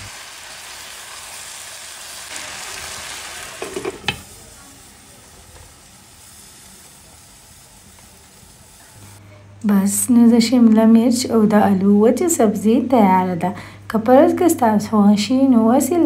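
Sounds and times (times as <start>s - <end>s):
vegetables sizzling in a frying pan: 0.0s - 9.2s.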